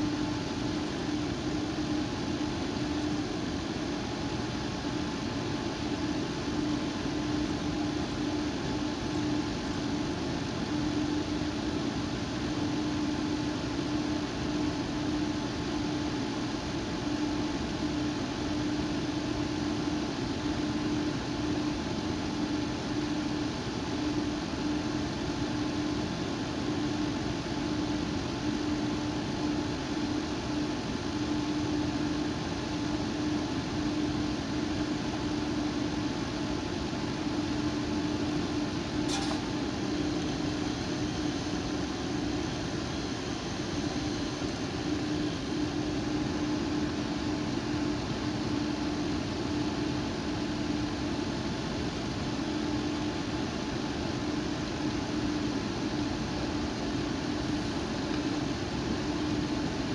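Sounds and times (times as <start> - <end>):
single click: 39.1 - 39.5.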